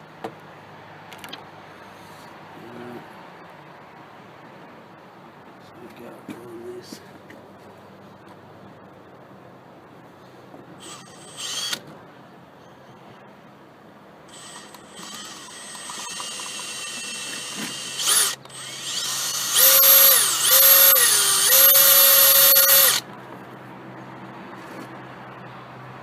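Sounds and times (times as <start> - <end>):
electric drill drilling metal: 10.8 - 11.8, 14.3 - 23.0.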